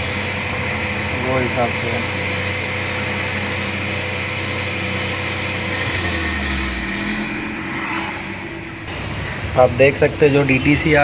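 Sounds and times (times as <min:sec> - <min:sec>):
car engine at raised revs: 0:00.0 - 0:11.0.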